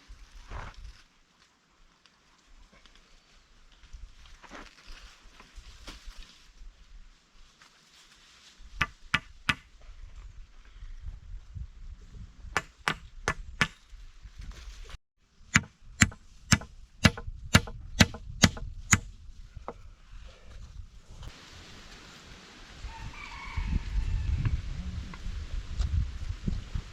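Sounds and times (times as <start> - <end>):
blade chopping wood: 12.6 - 13.8, 15.6 - 19.1.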